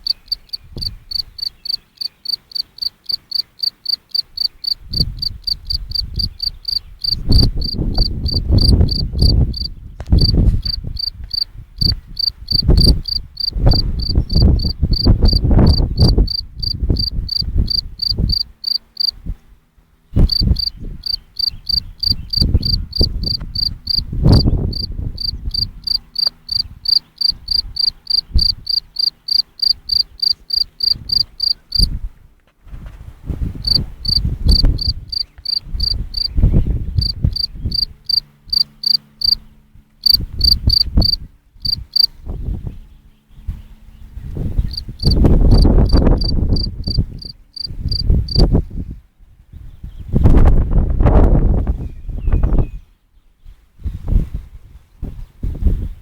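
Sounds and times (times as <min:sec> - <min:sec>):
cricket chirping: 0:00.0 - 0:19.2, 0:20.3 - 0:31.9, 0:33.6 - 0:36.3, 0:37.0 - 0:39.4, 0:40.0 - 0:42.1, 0:44.7 - 0:48.4
low rumbles and thumps: 0:07.0 - 0:16.3.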